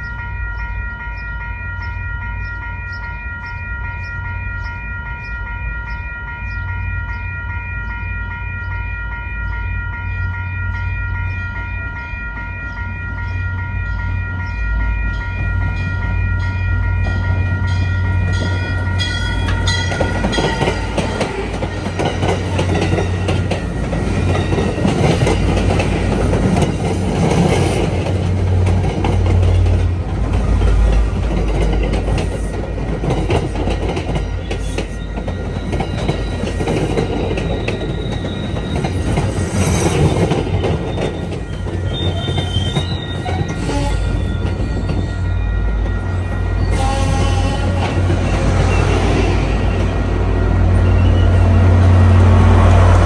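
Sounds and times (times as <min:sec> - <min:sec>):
rumble of train wheels on rail: 0:00.0 - 0:53.0
high wheel squeal: 0:37.4 - 0:45.6.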